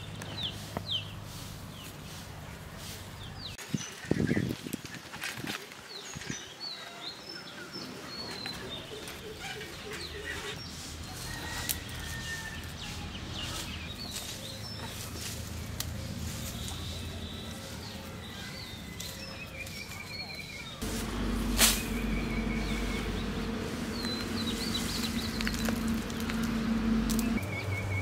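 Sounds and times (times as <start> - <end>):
birds chirping and calling: 0.0 - 28.0
low background rumble: 20.8 - 28.0.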